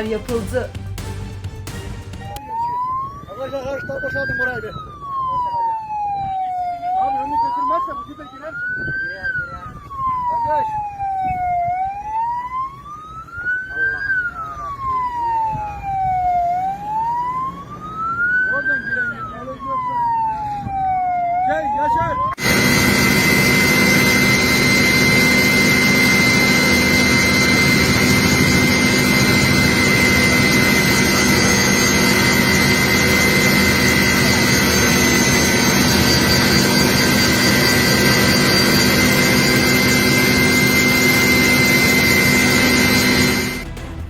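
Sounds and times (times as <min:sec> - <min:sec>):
aircraft turbine engine whining: 0:22.3 - 0:44.0.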